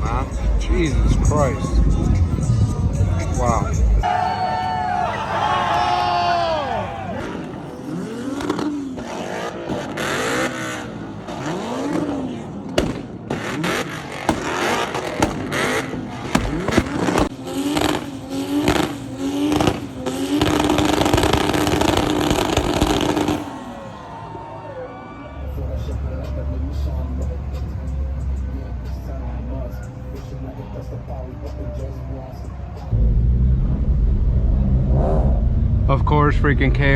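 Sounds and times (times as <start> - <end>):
car engine revving: 5.4 - 24.6, 25.4 - 36.9
exhaust pops and cracks: 12.7 - 23.4.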